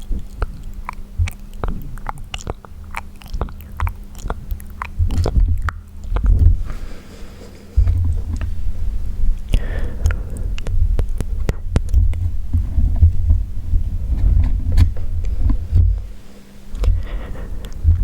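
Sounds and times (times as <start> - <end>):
tongue clicks and lip smacks: 0.0 - 6.6, 9.4 - 12.3
pulsing low rumble: 0.0 - 6.9, 7.7 - 18.0.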